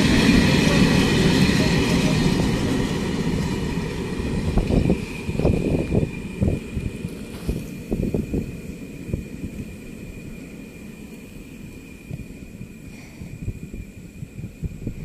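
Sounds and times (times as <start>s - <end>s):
freight train rumbling: 0.0s - 15.0s
wind on microphone: 4.1s - 9.8s, 12.0s - 15.0s.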